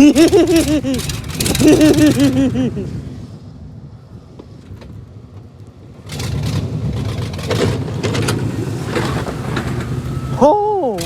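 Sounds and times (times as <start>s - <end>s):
truck engine running: 0.0s - 3.0s, 5.9s - 11.0s.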